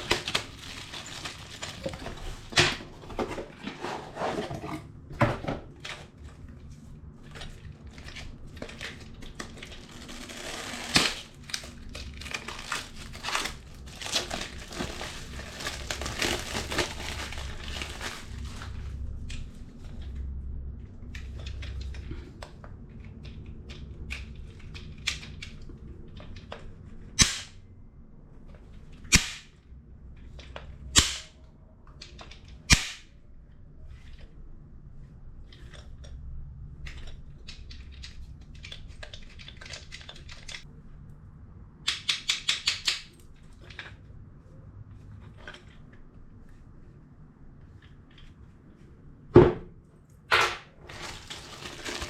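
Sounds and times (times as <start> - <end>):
handling knocks and rustles: 0.0 - 20.1, 50.3 - 52.0.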